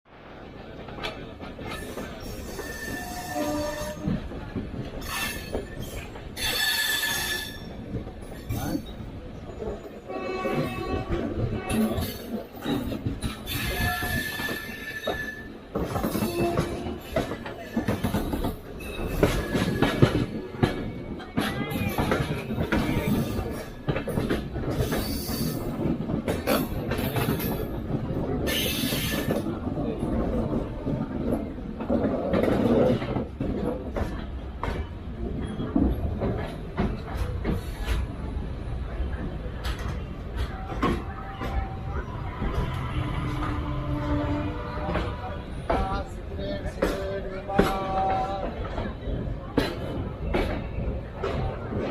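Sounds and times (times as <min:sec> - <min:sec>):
train rumbling on track: 0:00.1 - 0:51.9
wheels clicking over rail joints: 0:00.8 - 0:51.9
train wheels squealing: 0:01.7 - 0:04.1, 0:05.0 - 0:10.9, 0:13.4 - 0:16.8, 0:17.7 - 0:20.2, 0:24.8 - 0:25.7.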